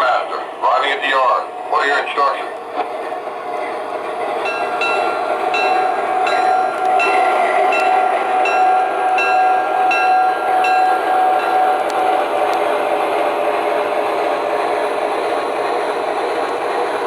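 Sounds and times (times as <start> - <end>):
diesel engine drone: 0.0 - 17.0
locomotive bell ringing: 3.6 - 14.0.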